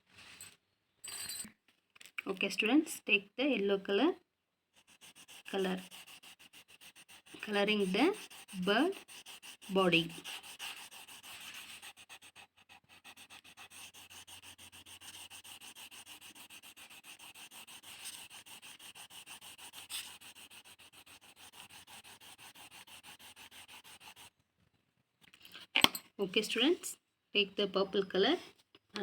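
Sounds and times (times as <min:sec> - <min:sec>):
crayon scribbling on paper: 0:04.8 - 0:24.3.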